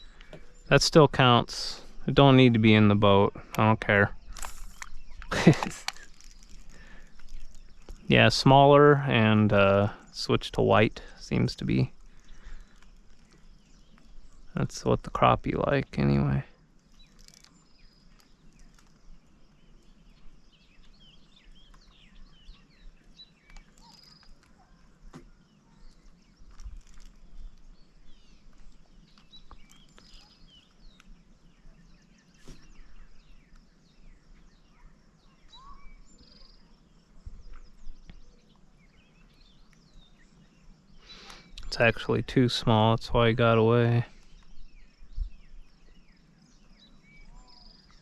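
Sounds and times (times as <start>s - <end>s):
birds chirping and calling: 0.0s - 48.0s
light clicks: 4.3s - 8.1s.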